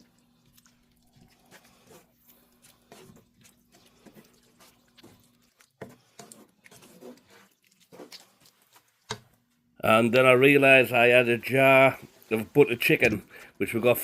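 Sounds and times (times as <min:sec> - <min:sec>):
sauce bubbling in a pan: 0:00.0 - 0:09.4.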